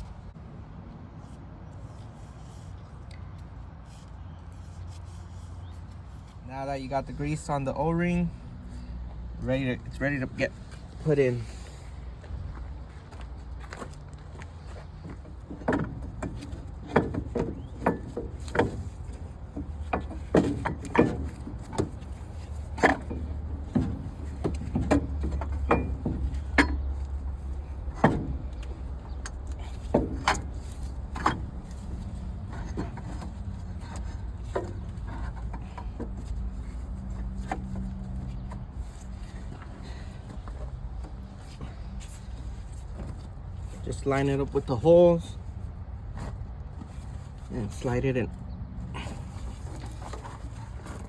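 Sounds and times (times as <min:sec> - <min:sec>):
clicks and metal knocks: 0:12.5 - 0:44.8.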